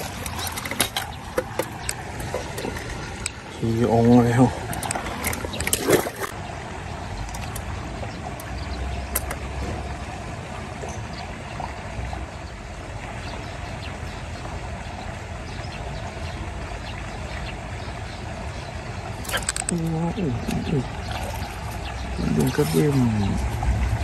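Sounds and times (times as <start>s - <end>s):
sharp splashes: 20.5s - 24.0s
low rumble: 20.8s - 24.0s.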